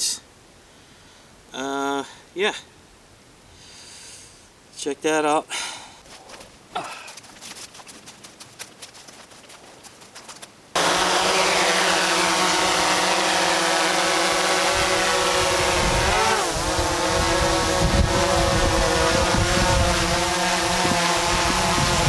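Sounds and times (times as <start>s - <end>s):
drone propellers whining: 10.8s - 22.0s.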